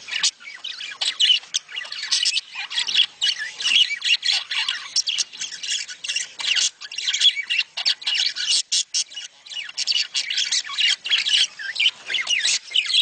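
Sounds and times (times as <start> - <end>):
budgerigars chattering and chirping: 0.0 - 13.0.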